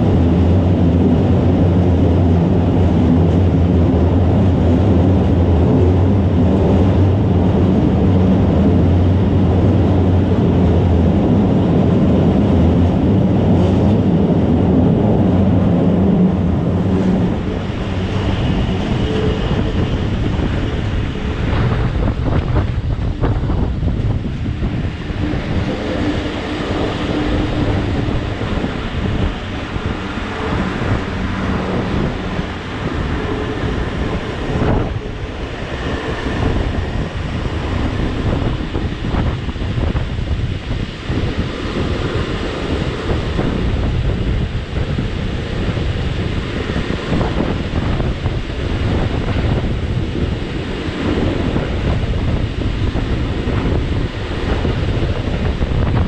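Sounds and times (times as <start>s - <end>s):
train wheel and rail noise: 0.0s - 56.0s
wind rushing over microphone: 0.0s - 56.0s.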